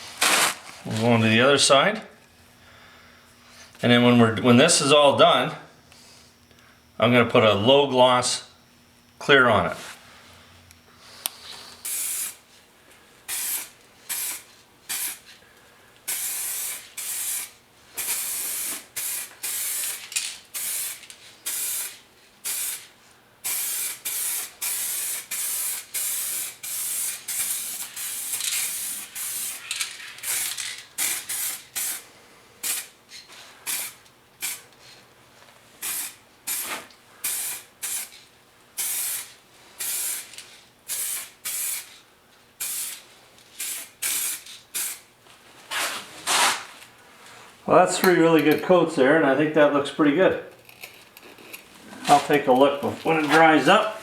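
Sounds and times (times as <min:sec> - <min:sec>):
aerosol spray can spraying: 0:11.8 - 0:12.4, 0:13.3 - 0:15.3, 0:16.1 - 0:22.9, 0:23.5 - 0:32.0, 0:32.6 - 0:32.9, 0:33.7 - 0:34.6, 0:35.8 - 0:38.2, 0:38.8 - 0:40.3, 0:40.9 - 0:41.9, 0:42.6 - 0:43.0, 0:43.6 - 0:45.0.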